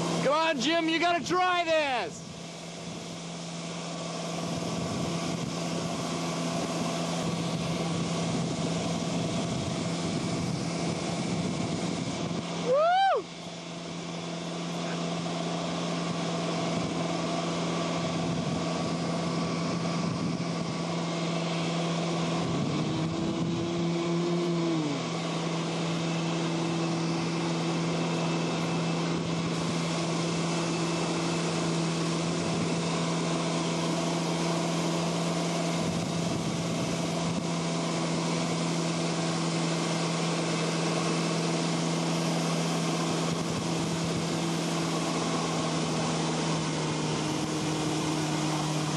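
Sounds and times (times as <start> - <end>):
motorboat engine running: 0.0 - 48.9
wind and water hiss: 1.7 - 48.9.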